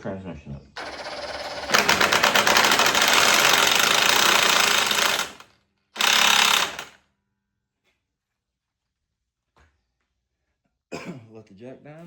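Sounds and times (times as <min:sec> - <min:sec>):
power tool hammering rapidly: 0:00.8 - 0:07.0.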